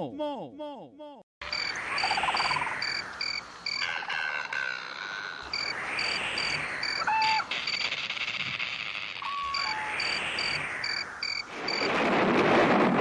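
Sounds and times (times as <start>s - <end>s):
crickets chirping: 1.4s - 8.4s, 9.2s - 12.0s
short animal call: 6.9s - 10.2s.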